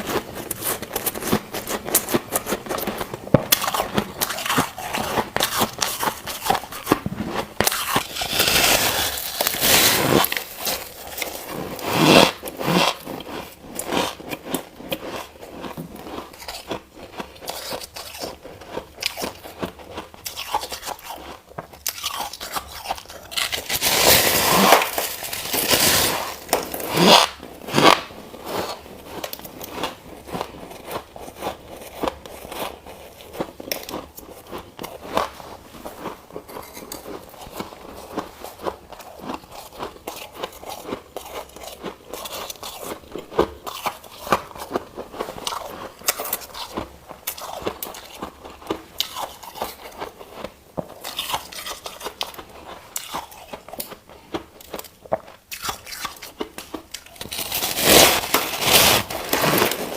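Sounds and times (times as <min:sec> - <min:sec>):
ice crunching while chewed: 0:00.0 - 0:59.9.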